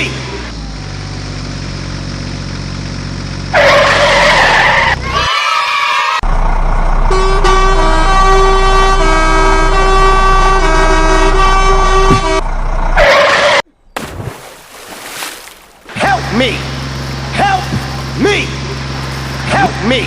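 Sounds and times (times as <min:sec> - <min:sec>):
multi-tone musical vehicle horn: 0:07.1 - 0:13.6.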